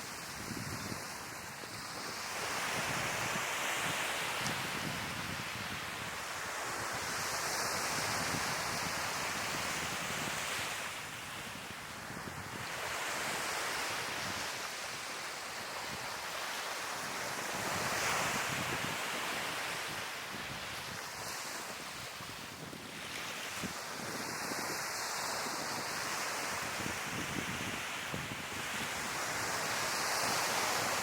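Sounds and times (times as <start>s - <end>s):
sea waves washing onto shore: 0.0s - 31.0s
wind buffeting microphone: 0.2s - 1.2s, 6.8s - 10.6s, 17.6s - 24.8s, 25.4s - 30.8s.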